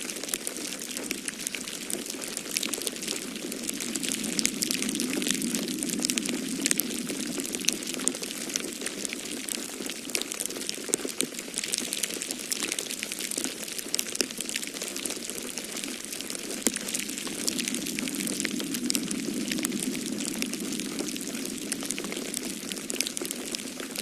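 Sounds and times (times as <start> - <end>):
wood fire crackling: 0.0 - 24.0
snowstorm wind rushing: 1.2 - 9.7, 15.7 - 24.0.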